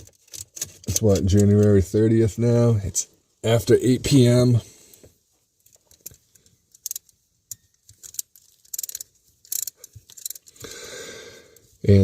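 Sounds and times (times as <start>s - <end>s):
loose tools rattling: 5.6s - 10.7s
ratcheting wrench clicking: 5.7s - 10.7s.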